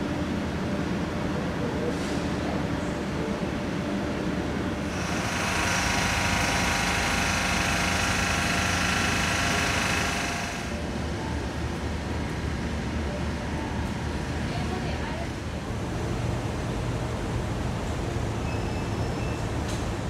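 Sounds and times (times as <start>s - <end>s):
low rumble of standing train: 0.0s - 20.0s.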